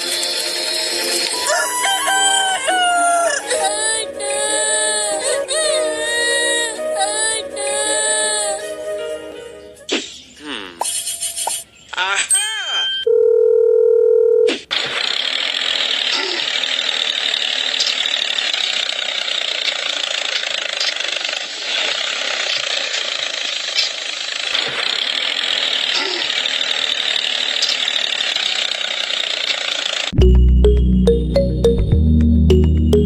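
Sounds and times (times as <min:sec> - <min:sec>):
small motor buzzing: 0:15.0 - 0:30.1.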